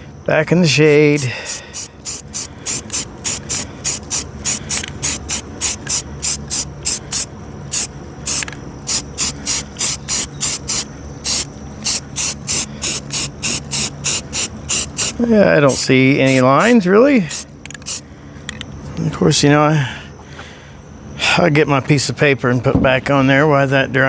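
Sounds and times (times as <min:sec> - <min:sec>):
spray can shaking with ball rattling: 0:01.2 - 0:16.4.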